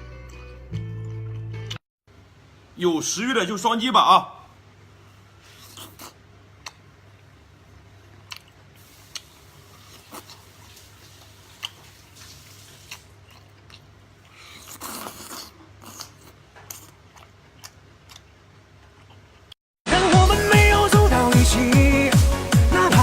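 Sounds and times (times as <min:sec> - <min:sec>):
person chewing and biting: 0:05.5 - 0:06.9, 0:08.0 - 0:19.6.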